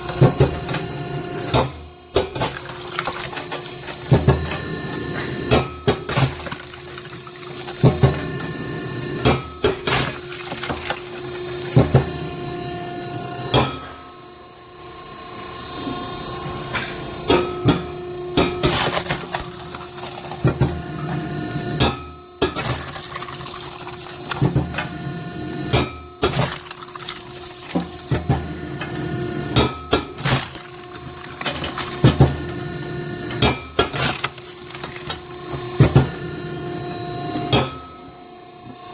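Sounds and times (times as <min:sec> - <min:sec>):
hydraulic log splitter humming: 0:00.0 - 0:14.1, 0:15.5 - 0:38.9
wood cracking and splitting: 0:02.3 - 0:04.3, 0:06.1 - 0:08.2, 0:09.2 - 0:12.1, 0:18.6 - 0:20.7, 0:22.6 - 0:24.7, 0:25.7 - 0:28.4, 0:29.6 - 0:32.4, 0:33.8 - 0:35.6.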